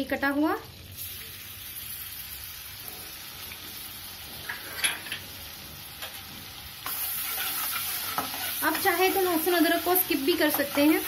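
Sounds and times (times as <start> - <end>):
garlic sizzling in butter: 0.9 - 11.0
metal spatula stirring: 6.8 - 11.0.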